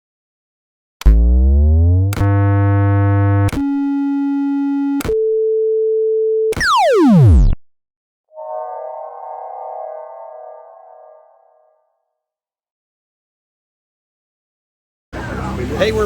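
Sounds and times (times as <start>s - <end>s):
synthesized electronic tones: 1.1s - 5.2s, 6.5s - 7.6s, 8.3s - 11.9s.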